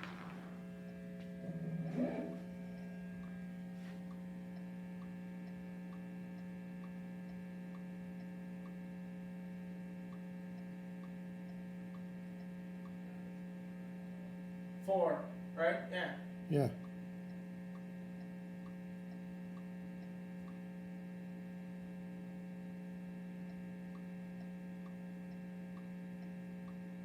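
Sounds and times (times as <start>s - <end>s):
electrical mains hum: 0.0s - 27.0s
click track ticks: 2.8s - 13.5s, 16.8s - 20.7s, 23.2s - 27.0s.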